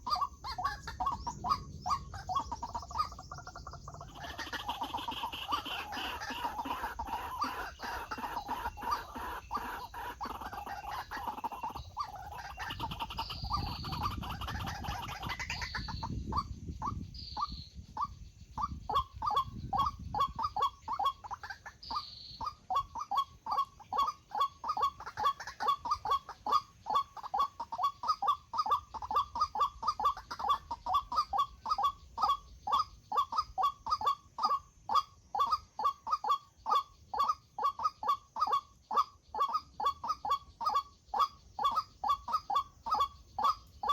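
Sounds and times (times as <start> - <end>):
waterhen calling harsh notes: 4.0 - 16.0.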